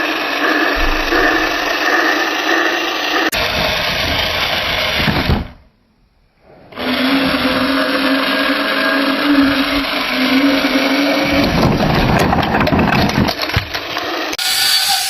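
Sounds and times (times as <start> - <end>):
small motor whirring: 6.8 - 12.2.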